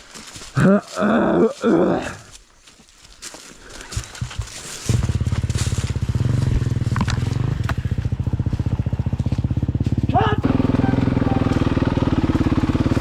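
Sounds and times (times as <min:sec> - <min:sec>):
dirt bike engine running: 0:04.0 - 0:13.0.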